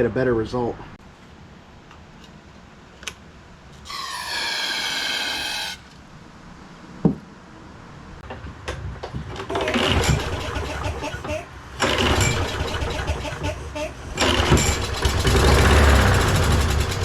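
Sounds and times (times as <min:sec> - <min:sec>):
aerosol can hissing: 0:03.9 - 0:05.8
engine turning over: 0:09.4 - 0:17.0
recoil starter pull: 0:09.4 - 0:17.0.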